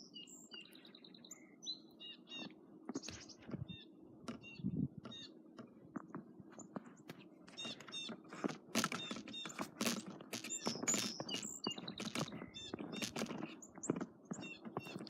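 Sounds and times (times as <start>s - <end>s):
small birds chirping: 0.0s - 15.0s
crunching scraping strokes: 6.1s - 15.0s.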